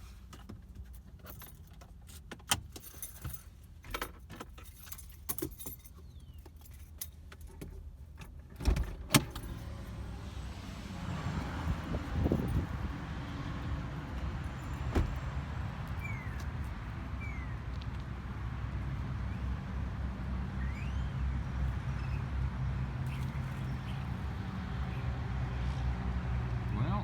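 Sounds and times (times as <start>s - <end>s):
car door opening and shutting: 8.2s - 10.0s, 14.2s - 15.4s
outdoor hiss of traffic: 8.6s - 27.0s.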